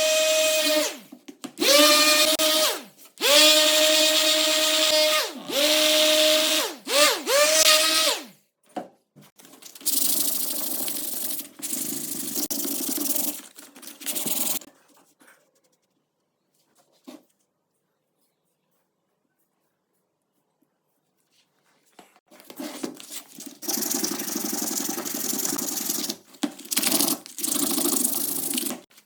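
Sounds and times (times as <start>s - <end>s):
power tool grinding: 1.6s - 8.3s
power tool whining: 1.6s - 8.3s.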